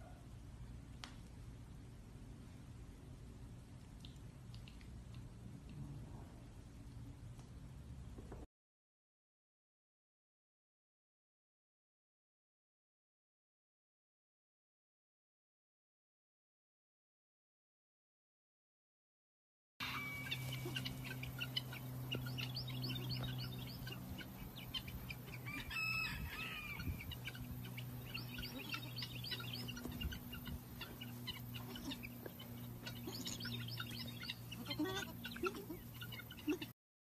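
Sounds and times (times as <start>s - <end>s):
steady low hum: 0.0s - 8.4s, 19.8s - 36.7s
birds chirping: 19.8s - 36.7s.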